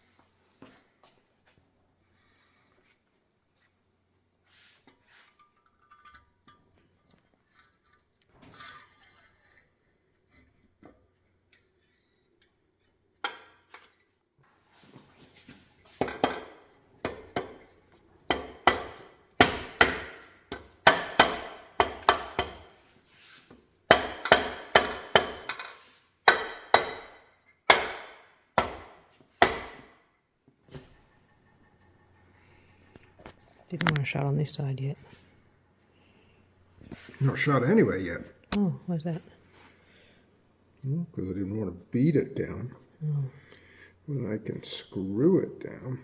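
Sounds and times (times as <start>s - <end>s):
hammer striking engine parts: 16.0s - 17.6s, 18.3s - 22.8s, 23.9s - 30.0s.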